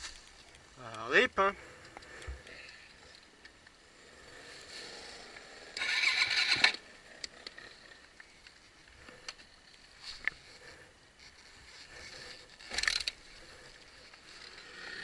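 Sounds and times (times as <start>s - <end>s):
motorcycle engine cranking: 5.8s - 6.8s.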